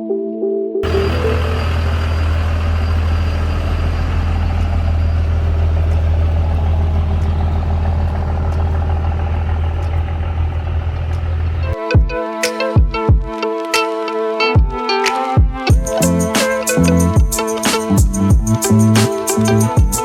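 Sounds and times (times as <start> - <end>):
car engine idling: 0.8 - 11.8, 15.7 - 20.0.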